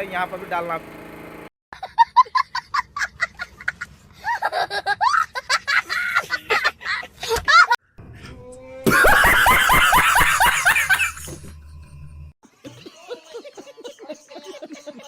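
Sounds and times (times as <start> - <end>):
person laughing: 8.8 - 11.5.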